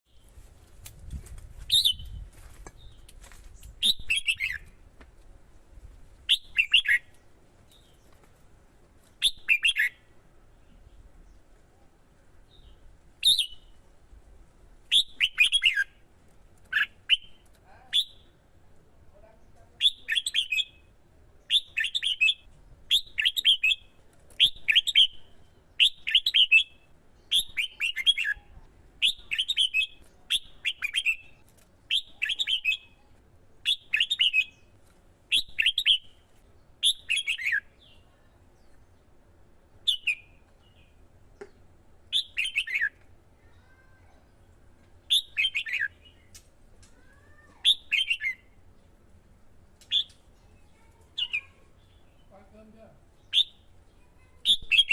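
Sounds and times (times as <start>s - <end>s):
bird singing whistled phrases: 1.7s - 2.2s, 3.8s - 4.6s, 6.3s - 7.1s, 9.2s - 10.0s, 13.2s - 13.7s, 14.9s - 15.9s, 16.7s - 18.3s, 19.8s - 20.8s, 21.5s - 25.2s, 25.8s - 31.3s, 31.9s - 33.0s, 33.6s - 34.6s, 36.8s - 38.0s, 42.1s - 43.0s, 45.1s - 46.3s, 47.6s - 48.6s, 49.9s - 50.2s, 53.2s - 53.7s, 54.4s - 54.9s.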